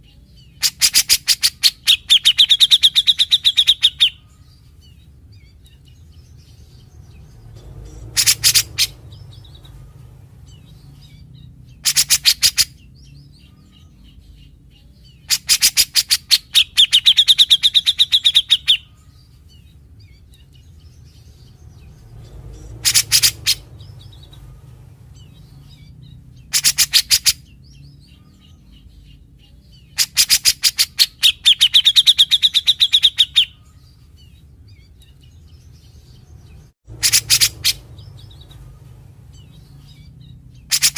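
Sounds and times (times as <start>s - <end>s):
bird harsh rattling calls: 0.6s - 4.2s, 6.3s - 12.9s, 15.3s - 18.9s, 21.2s - 27.5s, 29.9s - 33.6s, 36.4s - 40.9s.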